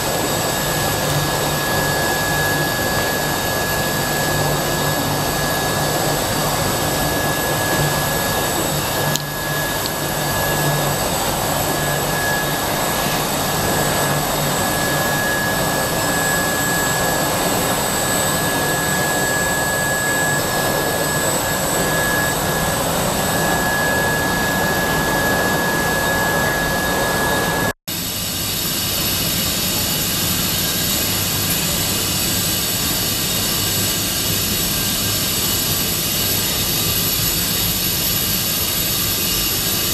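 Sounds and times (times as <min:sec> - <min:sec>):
high machine whine: 0:00.0 - 0:39.9
loud machine noise: 0:00.0 - 0:39.9.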